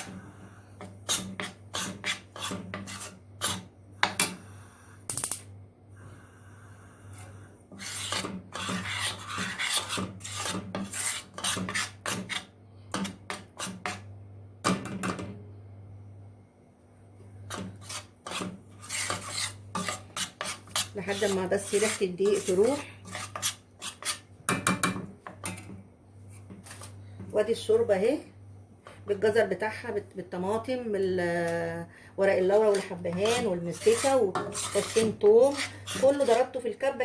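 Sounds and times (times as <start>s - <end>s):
utensil scraping flour in pan: 0.0s - 4.3s, 7.1s - 14.1s, 17.4s - 24.3s, 32.4s - 36.6s
steady low hum: 0.0s - 37.0s.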